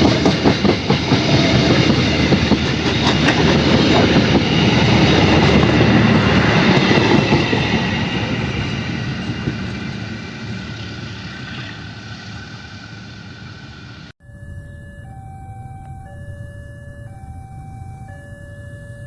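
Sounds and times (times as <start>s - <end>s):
train passing on rails: 0.0s - 14.1s.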